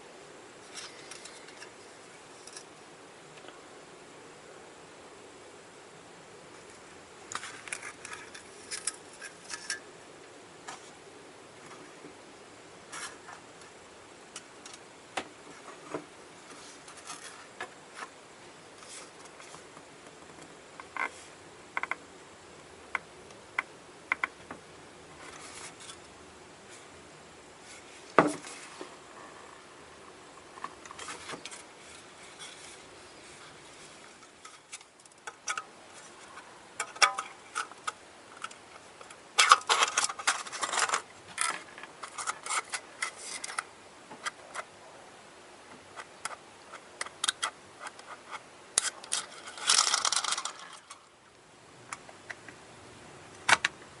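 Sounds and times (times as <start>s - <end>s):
faint steady hum: 0.0s - 54.0s
clicks of small objects handled: 48.8s - 51.0s.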